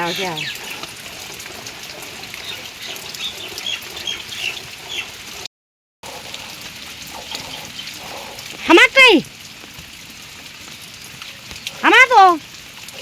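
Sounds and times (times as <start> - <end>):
small birds chirping: 0.0 - 5.3, 7.1 - 8.8
rain hiss: 0.0 - 13.0.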